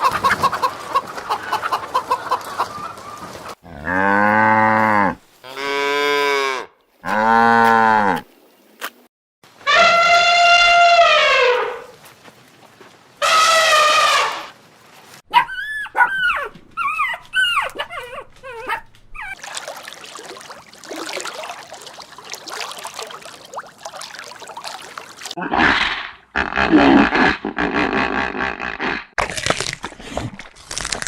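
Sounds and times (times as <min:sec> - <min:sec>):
dog whining and yelping: 0:15.3 - 0:19.4.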